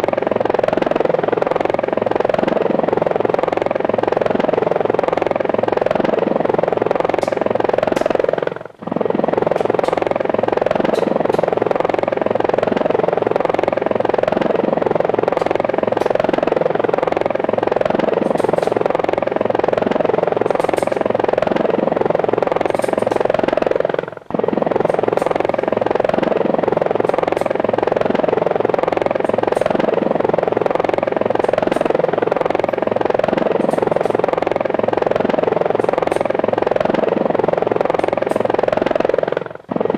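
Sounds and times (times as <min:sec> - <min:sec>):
drone motors buzzing: 0:00.0 - 0:39.9.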